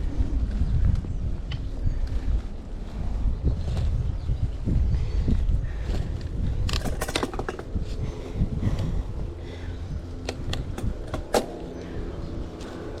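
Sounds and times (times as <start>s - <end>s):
wind rumbling on microphone: 0.0s - 13.0s
sharp clicks and rattles: 6.6s - 7.8s, 10.2s - 11.6s.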